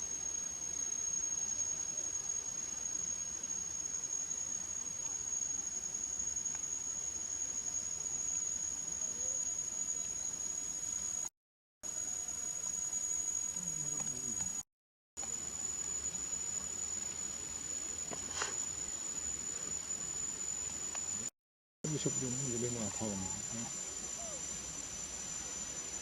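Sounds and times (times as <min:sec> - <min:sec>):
faint outdoor ambience: 0:00.0 - 0:11.3, 0:21.9 - 0:26.0
insects droning: 0:00.0 - 0:14.6, 0:15.2 - 0:21.3, 0:21.9 - 0:26.0.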